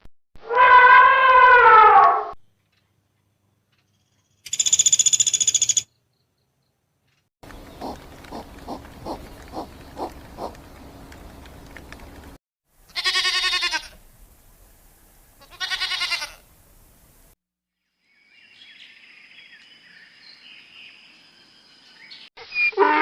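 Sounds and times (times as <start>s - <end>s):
farm animal bleating: 12.9s - 14.0s, 15.4s - 16.5s.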